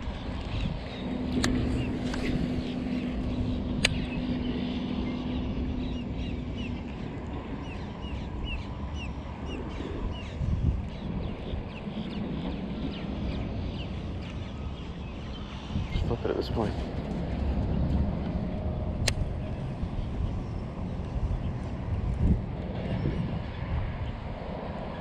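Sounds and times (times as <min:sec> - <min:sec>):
low steady hum: 0:00.0 - 0:25.0
wind noise on microphone: 0:00.0 - 0:25.0
sharp clicks: 0:03.8 - 0:04.2, 0:19.0 - 0:19.3.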